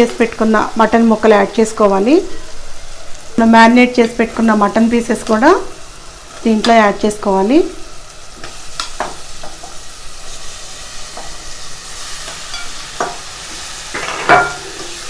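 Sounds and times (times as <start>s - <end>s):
meat sizzling in hot oil: 0.0s - 15.0s
spoon scraping a pot: 12.2s - 15.0s.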